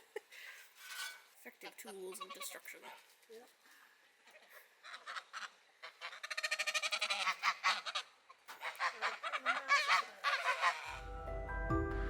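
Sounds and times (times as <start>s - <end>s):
geese honking: 4.9s - 11.1s
background music: 10.9s - 12.0s.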